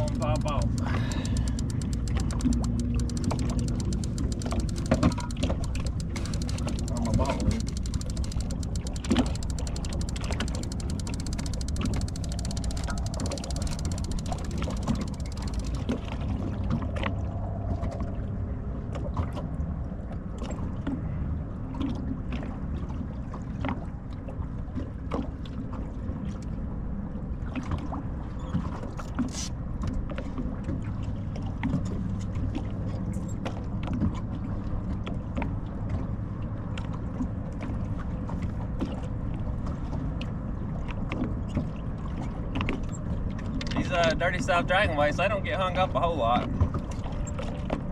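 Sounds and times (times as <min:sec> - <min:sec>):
water lapping against hull: 0:00.0 - 0:47.9
wind rumble: 0:12.4 - 0:20.3.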